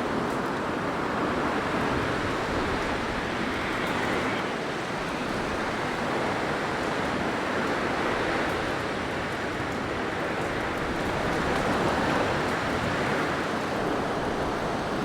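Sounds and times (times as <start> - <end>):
blizzard wind blowing: 0.9 - 8.4.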